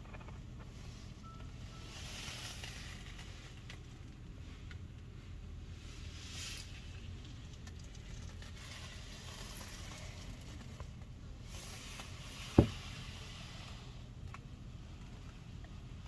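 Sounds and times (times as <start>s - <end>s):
sharp thump: 12.6s - 12.9s.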